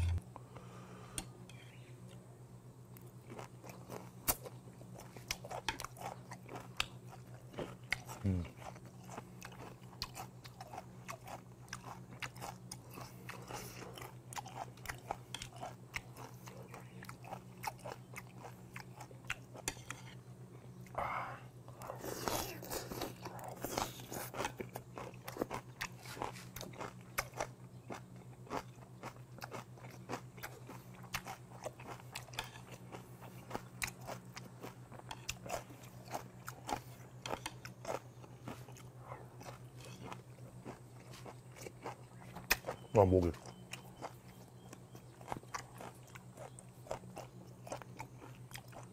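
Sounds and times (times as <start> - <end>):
person chewing crunchy food: 0.0 - 0.2, 3.0 - 21.1, 21.7 - 48.9
low hum: 0.0 - 4.9.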